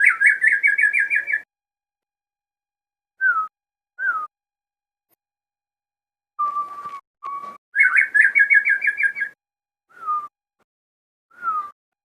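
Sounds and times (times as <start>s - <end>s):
songbird singing whistled notes: 0.0s - 1.5s, 3.2s - 4.4s, 6.4s - 10.4s, 11.3s - 11.8s.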